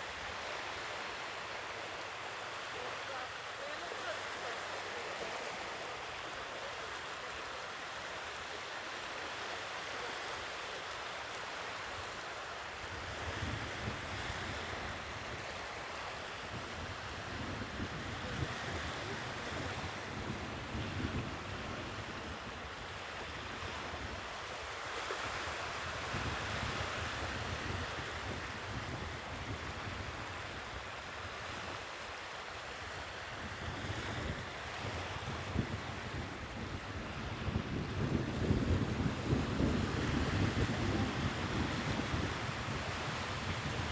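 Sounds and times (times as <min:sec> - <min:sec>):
sea waves washing ashore: 0:00.0 - 0:43.9
wind rumble on microphone: 0:12.9 - 0:15.7, 0:16.3 - 0:24.4, 0:25.2 - 0:31.8, 0:33.1 - 0:43.9.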